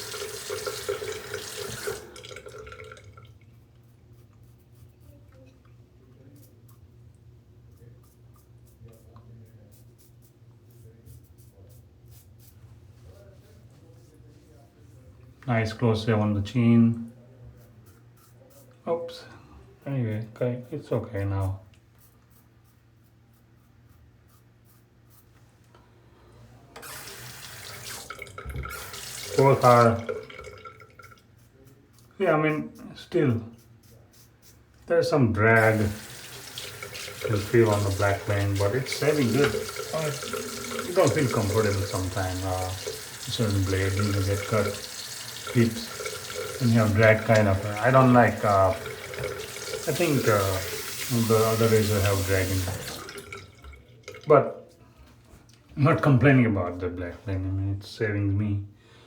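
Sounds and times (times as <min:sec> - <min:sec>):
tap water running into sink: 0:00.0 - 0:03.4, 0:26.8 - 0:31.2, 0:35.6 - 0:54.3
razor scraping stubble: 0:35.6 - 0:53.0.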